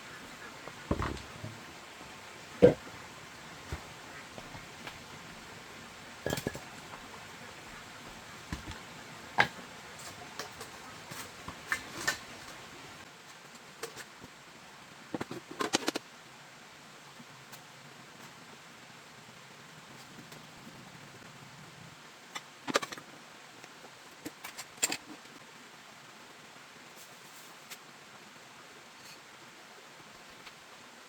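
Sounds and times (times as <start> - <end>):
clinks and knocks: 2.6 - 2.9, 6.2 - 7.2.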